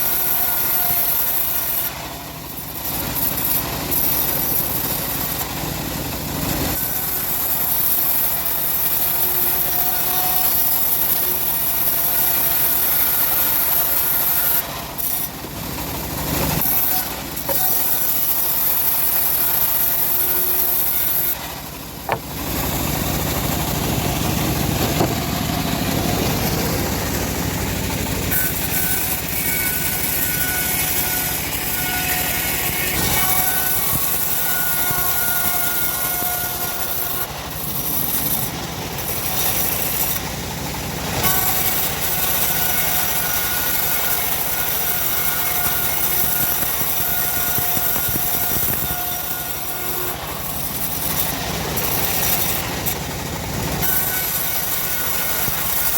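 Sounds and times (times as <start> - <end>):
bandsaw mill running: 0.0 - 55.9.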